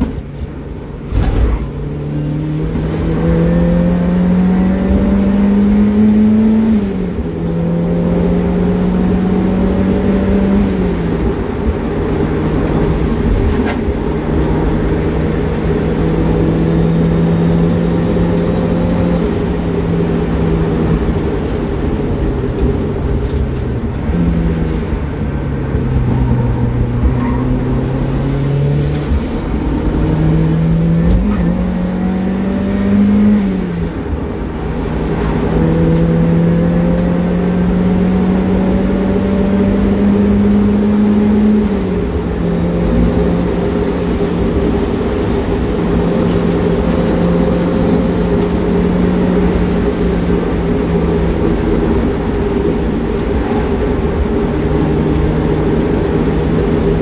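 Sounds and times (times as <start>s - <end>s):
car engine pulling under load: 0.0s - 57.0s
tyre and road noise: 0.0s - 57.0s.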